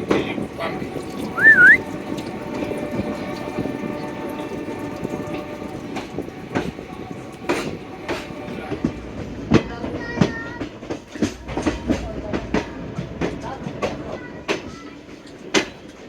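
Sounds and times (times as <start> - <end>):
high wheel squeal: 1.4 - 1.8.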